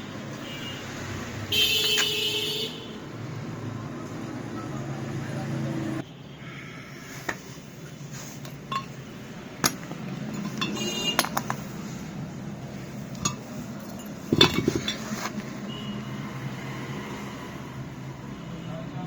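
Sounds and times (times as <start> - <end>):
metal parts clinking: 8.3 - 15.5.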